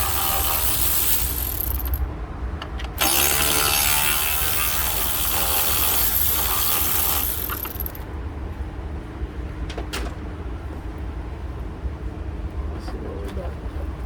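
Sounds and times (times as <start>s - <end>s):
power wrench whining: 0.0s - 2.0s, 3.0s - 8.0s.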